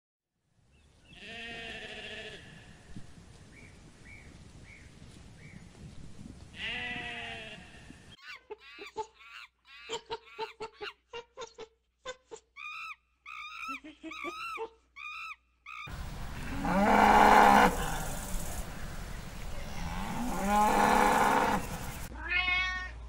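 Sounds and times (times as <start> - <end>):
outdoor noise: 0.3 - 23.0
sheep bleating: 1.2 - 2.7, 6.6 - 7.9
monkeys calling: 12.3 - 16.5.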